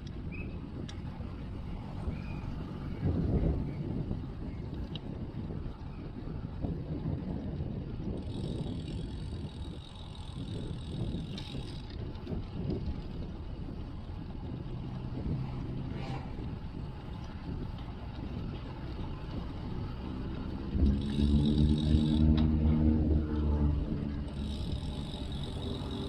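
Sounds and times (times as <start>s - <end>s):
road noise rumble: 0.0s - 26.0s
wind buffeting: 0.0s - 26.0s.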